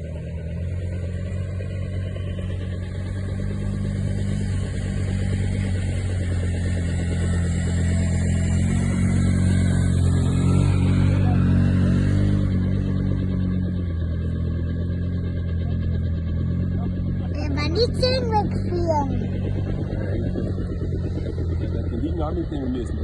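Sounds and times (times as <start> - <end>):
helicopter rotor and turbine: 0.0 - 23.0.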